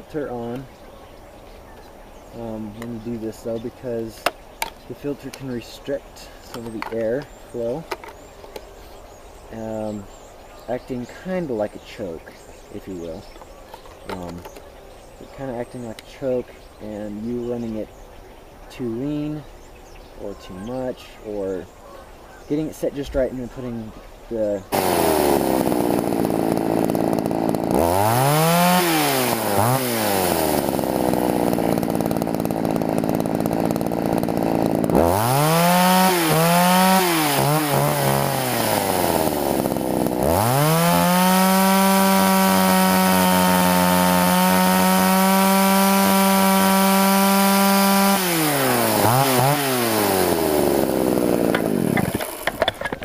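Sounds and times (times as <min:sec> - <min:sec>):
chainsaw idling and revving: 0:06.4 - 0:10.2, 0:12.9 - 0:14.7, 0:24.7 - 0:53.0.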